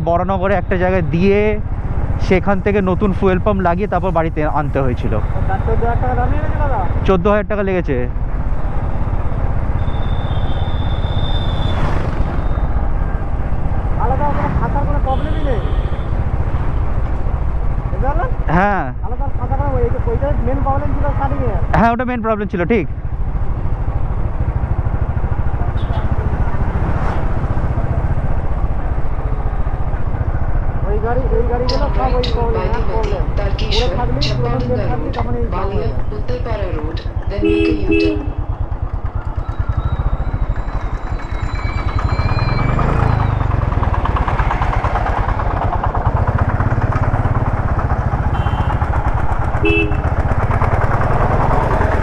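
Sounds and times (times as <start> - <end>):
wind and road noise: 0.0 - 52.0
motorcycle engine running: 1.1 - 7.1, 8.1 - 18.4, 22.9 - 52.0
horn beep: 9.7 - 12.8, 31.7 - 38.7, 48.3 - 49.0, 49.6 - 50.2.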